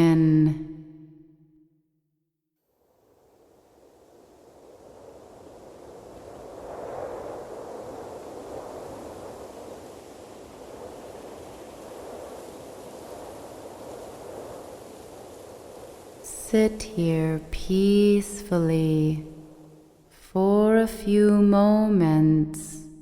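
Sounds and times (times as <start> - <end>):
ocean waves surf: 3.7 - 20.0.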